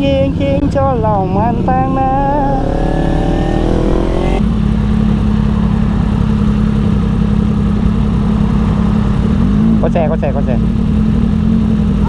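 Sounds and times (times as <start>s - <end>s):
man singing: 0.0s - 4.4s
motorcycle engine running: 0.0s - 12.0s
rushing noise: 0.7s - 9.4s.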